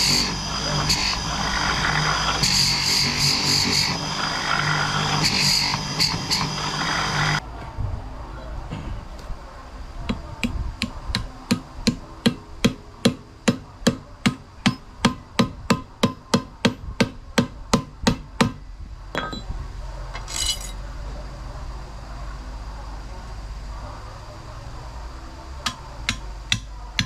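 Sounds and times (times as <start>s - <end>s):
hammer striking: 10.1s - 18.6s, 19.2s - 19.5s, 25.6s - 27.0s.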